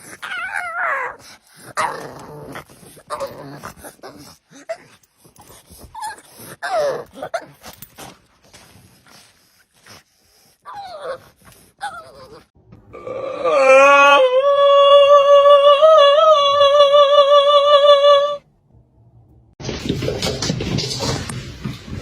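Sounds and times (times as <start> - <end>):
dog whining: 11.8 - 12.5.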